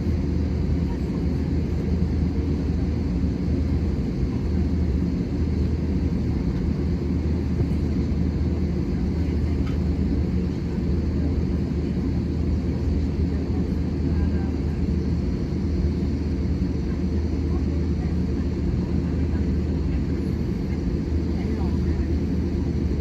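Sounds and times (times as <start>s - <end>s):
aircraft cabin rumble: 0.0s - 23.0s.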